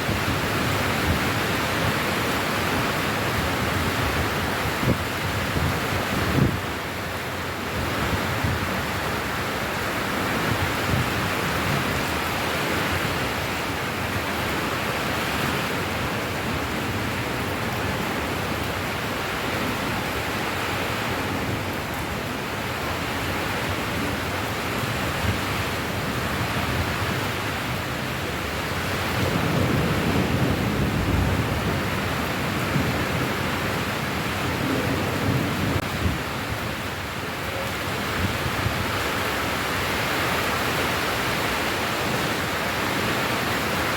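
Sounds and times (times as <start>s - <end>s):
heavy rain: 0.0s - 43.9s.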